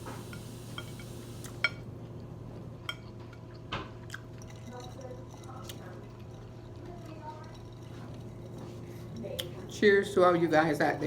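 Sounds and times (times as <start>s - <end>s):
steady low hum: 0.0s - 10.1s
person chewing with wet clicks: 3.0s - 6.8s, 9.2s - 9.6s.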